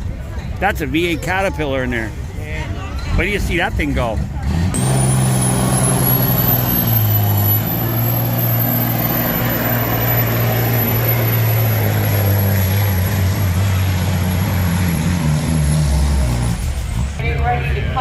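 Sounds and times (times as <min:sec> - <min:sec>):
diesel engine running: 0:03.6 - 0:18.0.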